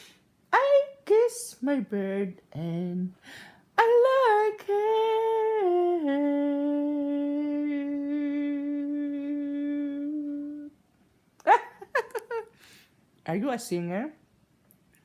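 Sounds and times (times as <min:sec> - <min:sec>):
woman singing a long note: 0:03.8 - 0:10.8.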